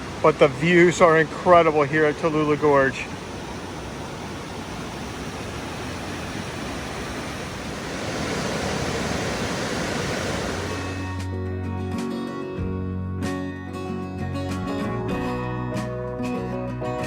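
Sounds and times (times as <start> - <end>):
river and falls rushing: 0.0 - 11.3
music: 10.7 - 17.0.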